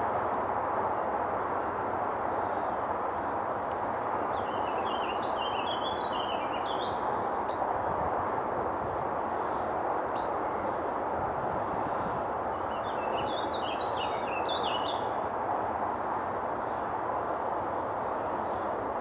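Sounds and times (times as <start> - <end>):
steady background noise: 0.0 - 19.0
songbird singing: 3.7 - 7.7, 9.4 - 10.8, 11.4 - 15.3
bird chirp: 4.3 - 7.6, 11.5 - 15.2.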